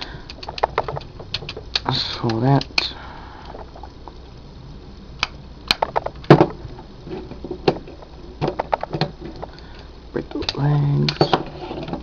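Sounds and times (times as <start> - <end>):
plastic toy clicking and snapping: 0.2 - 2.9, 5.2 - 6.2.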